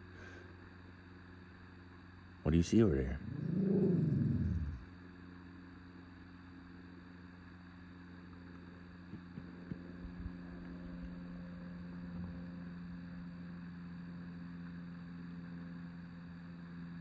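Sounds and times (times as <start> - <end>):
steady low hum: 0.0 - 17.0
dog growling low: 3.0 - 4.9.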